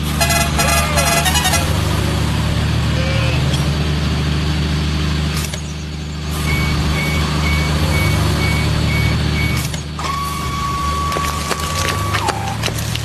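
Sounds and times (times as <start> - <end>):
truck engine running: 0.0 - 13.0
high-pitched tone: 0.2 - 1.8
reversing beeper: 0.2 - 1.8, 6.5 - 12.6.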